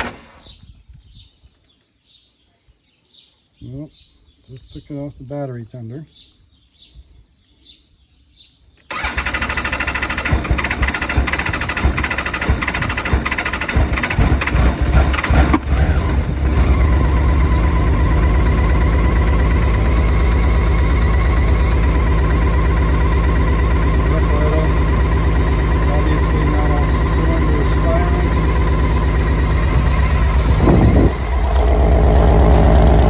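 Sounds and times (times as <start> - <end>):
motorcycle engine starter cranking: 8.9 - 17.0
engine idling: 8.9 - 33.0.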